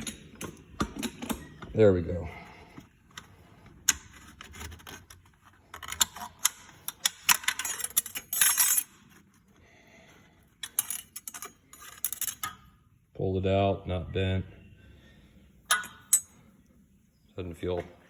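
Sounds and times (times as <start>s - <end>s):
metallic clicks and scrapes: 3.1s - 9.6s, 10.5s - 12.6s.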